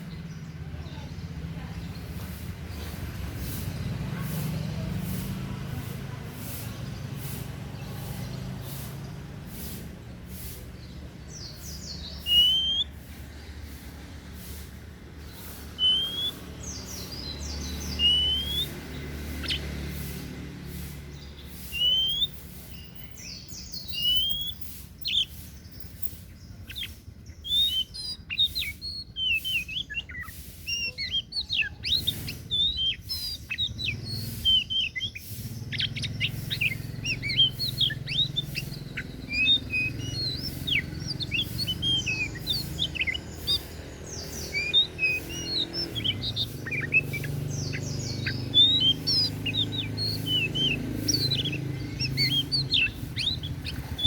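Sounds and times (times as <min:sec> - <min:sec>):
bird singing whistles and chirps: 0:10.7 - 0:13.0, 0:15.2 - 0:54.0.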